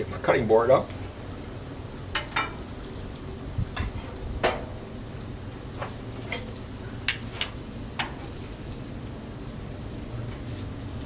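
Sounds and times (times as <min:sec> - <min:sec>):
griddle low hiss: 0:00.0 - 0:11.0
sharp pops and crackles: 0:02.1 - 0:08.9.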